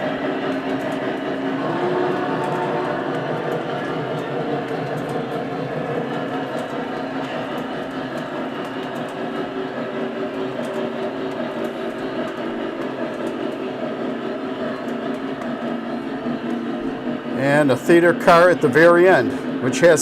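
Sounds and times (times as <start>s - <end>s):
model steam train running: 0.0s - 20.0s
wheels on track: 0.0s - 20.0s.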